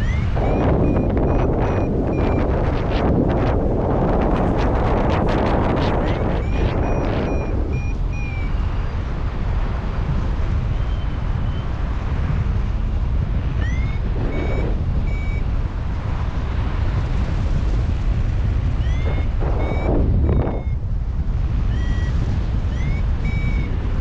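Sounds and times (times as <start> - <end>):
variometer short electronic beeps: 0.0 - 3.0, 4.6 - 8.9, 13.5 - 15.6, 18.8 - 20.8, 21.6 - 24.0
wind rumble on microphone: 0.0 - 24.0.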